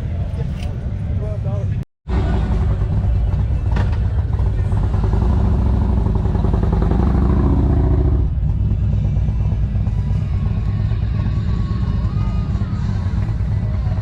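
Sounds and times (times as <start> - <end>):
motorcycle engine accelerating: 2.1 - 14.0.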